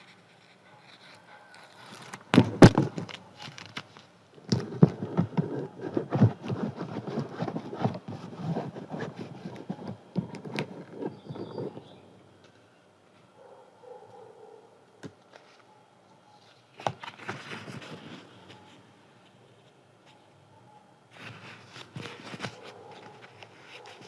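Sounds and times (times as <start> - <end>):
paper crackling and rustling: 0.0 - 11.9, 16.5 - 18.8, 21.2 - 24.0.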